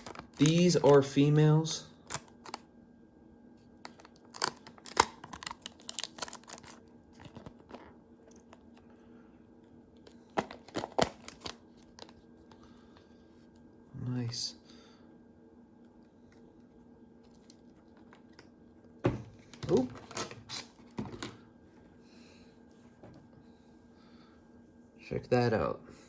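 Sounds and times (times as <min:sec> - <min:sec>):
packaging crackling: 0:00.0 - 0:02.6, 0:03.8 - 0:08.8, 0:10.4 - 0:12.2.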